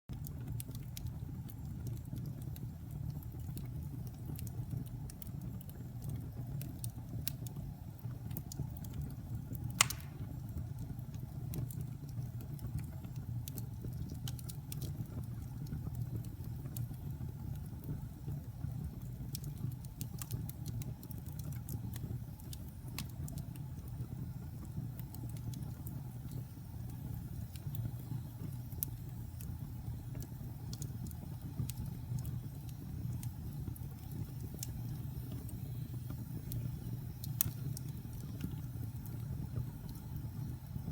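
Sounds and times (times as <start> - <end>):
wood fire crackling: 0.1 - 40.9
sharp pop from fire: 9.7 - 10.4.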